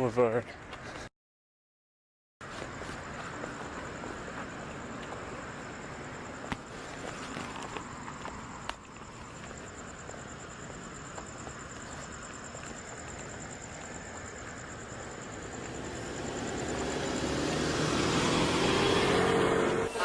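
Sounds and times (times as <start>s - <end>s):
street traffic noise: 2.4s - 20.0s
vehicle approaching: 14.1s - 20.0s.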